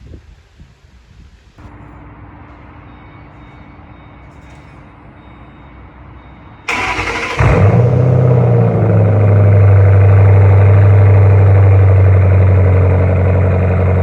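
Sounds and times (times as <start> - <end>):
engine cranking: 6.7 - 8.6
car engine idling loudly: 6.7 - 14.0.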